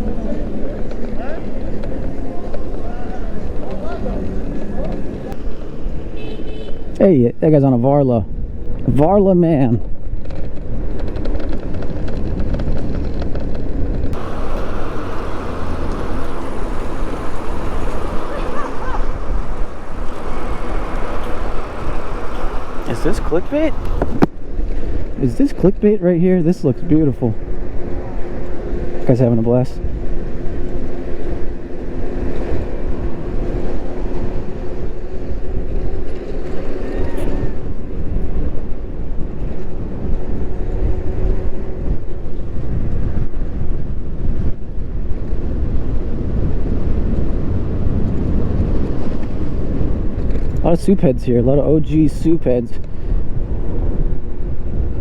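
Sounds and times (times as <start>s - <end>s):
wind and road noise: 0.0s - 55.0s
steady hiss: 14.2s - 24.2s.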